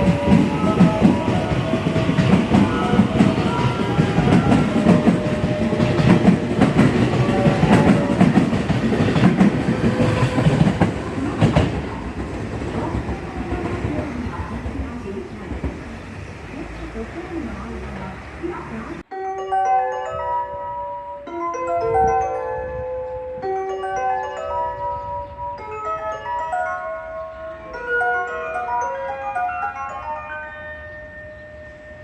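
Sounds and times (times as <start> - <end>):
train wheels clicking over rail joints: 0.0 - 15.9
heavy train rumble: 0.0 - 19.1, 21.8 - 32.0.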